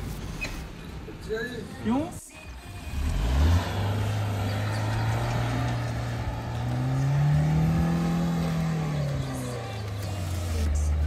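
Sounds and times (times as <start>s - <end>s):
car engine pulling under throttle: 2.5s - 11.0s.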